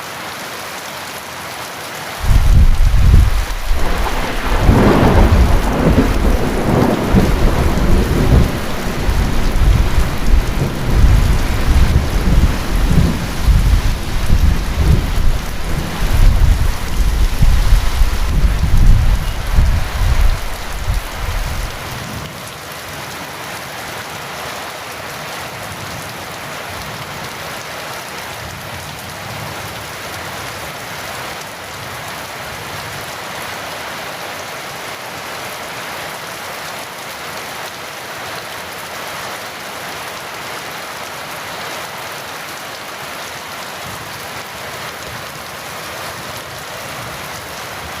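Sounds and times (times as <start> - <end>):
heavy rain: 0.0 - 48.0
rolling thunder: 2.2 - 22.0.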